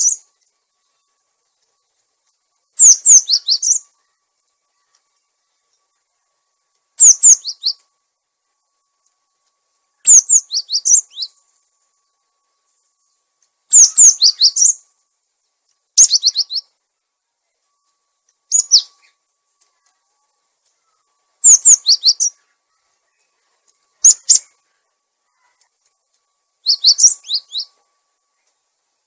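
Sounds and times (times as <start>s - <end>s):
bird calling: 0.0s - 0.3s, 2.7s - 4.2s, 7.0s - 7.9s, 10.0s - 11.4s, 13.7s - 14.8s, 16.0s - 16.7s, 18.5s - 19.2s, 20.7s - 23.4s, 24.0s - 25.7s, 26.6s - 27.8s.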